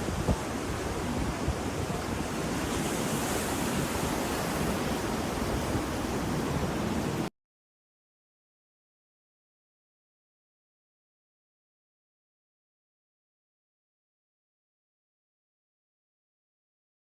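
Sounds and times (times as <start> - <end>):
ocean surf washing: 0.0 - 7.3.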